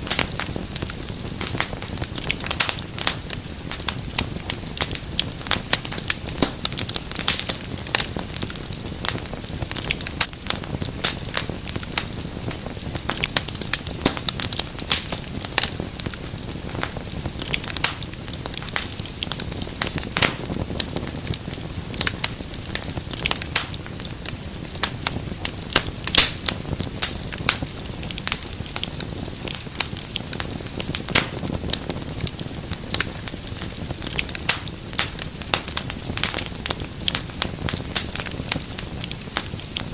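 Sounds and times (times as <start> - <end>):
fire crackling and popping: 0.0 - 39.9
low rush of flame: 0.0 - 39.9.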